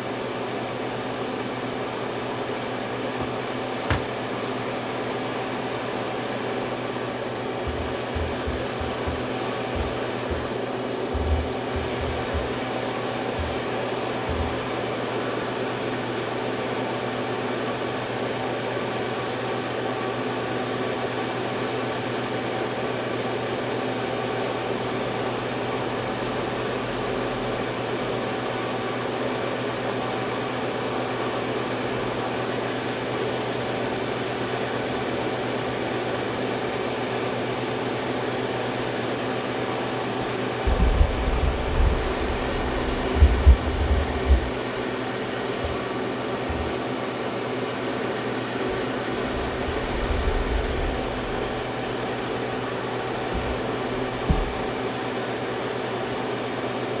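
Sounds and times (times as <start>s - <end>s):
cooling fans whooshing hum: 0.0s - 57.0s
low bumps: 40.7s - 44.8s, 45.5s - 46.8s, 48.7s - 54.8s.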